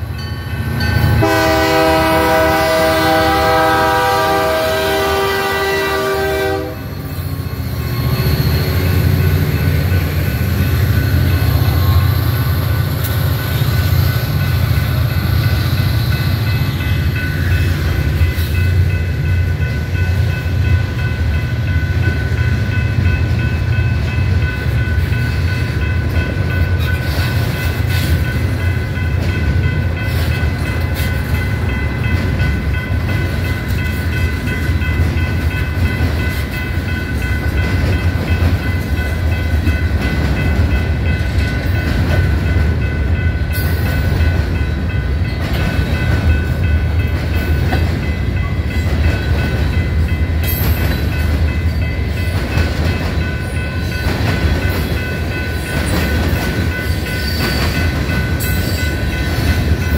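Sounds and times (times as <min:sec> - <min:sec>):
crossing bell ringing: 0:00.0 - 0:59.9
diesel locomotive passing: 0:00.0 - 0:59.9.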